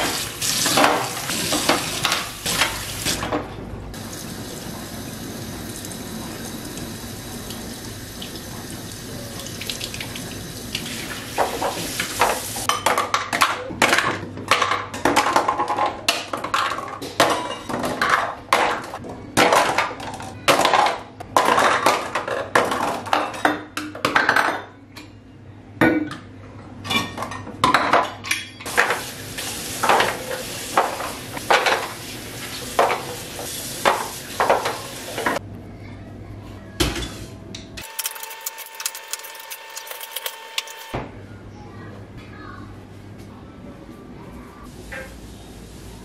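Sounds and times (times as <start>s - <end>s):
dishes and cutlery clattering: 11.4s - 25.2s.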